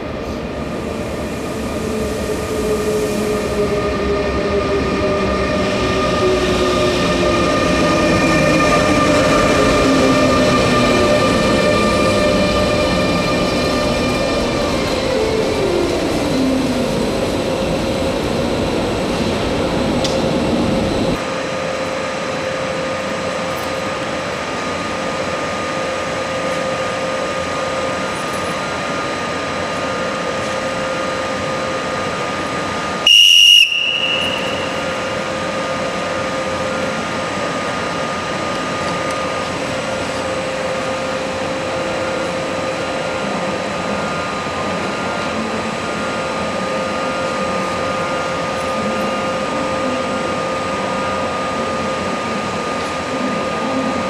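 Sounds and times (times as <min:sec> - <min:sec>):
train motor whine: 0:00.2 - 0:54.0
steady hum with held tones: 0:14.4 - 0:54.0
loud high whistle blast: 0:33.0 - 0:35.2.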